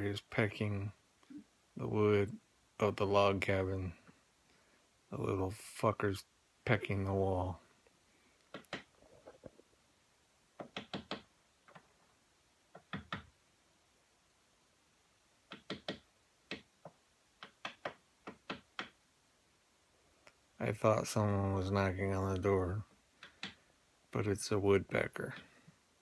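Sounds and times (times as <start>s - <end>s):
woodpecker pecking on wood: 8.5s - 8.9s, 10.6s - 11.9s, 15.5s - 19.0s.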